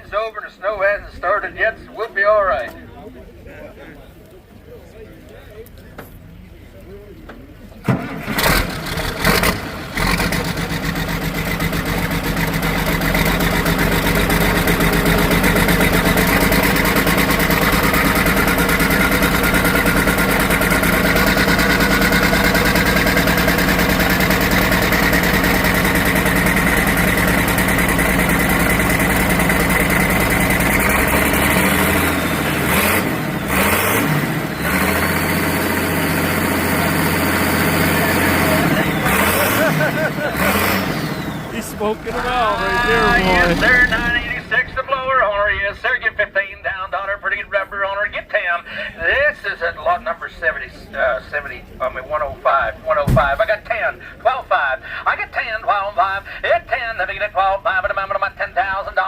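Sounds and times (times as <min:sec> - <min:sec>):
diesel tractor engine running: 0:07.8 - 0:45.7.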